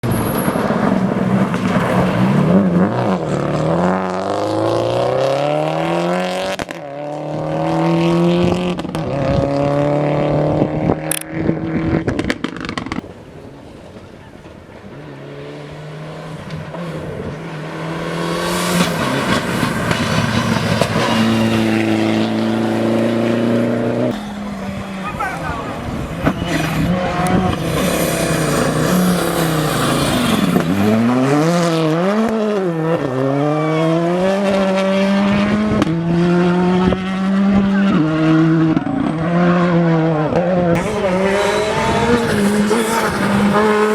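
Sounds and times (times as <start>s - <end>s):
rally car engines revving: 0.0s - 43.9s.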